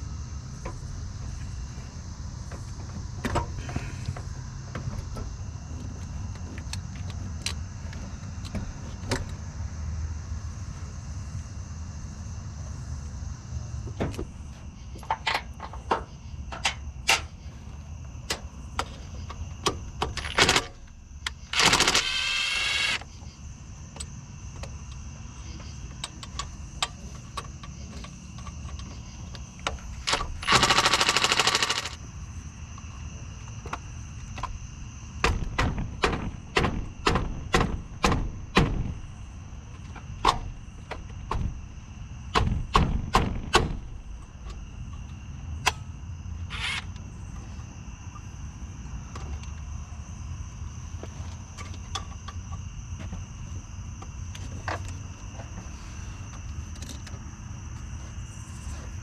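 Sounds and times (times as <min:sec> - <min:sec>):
ratchet clicking: 0:21.4 - 0:23.0, 0:30.1 - 0:32.0.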